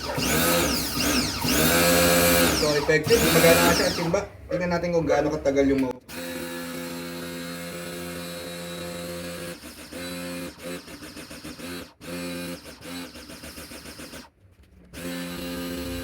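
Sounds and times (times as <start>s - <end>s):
pressure washer motor humming: 0.0s - 4.2s, 15.0s - 16.0s.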